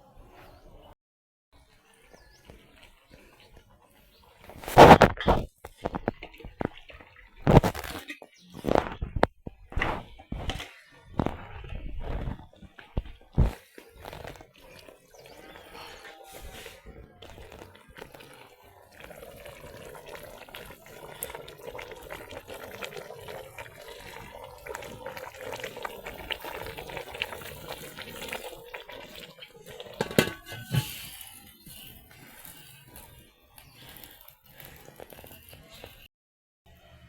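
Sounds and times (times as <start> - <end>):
water running in a sink: 17.3 - 33.1.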